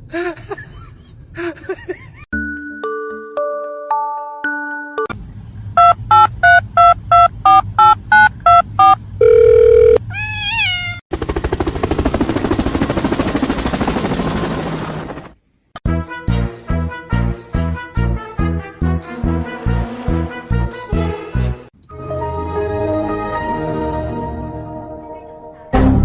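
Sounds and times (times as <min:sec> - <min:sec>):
keypad dialing beeps: 0:05.8 - 0:10.0
steady telephone tone: 0:05.8 - 0:10.0.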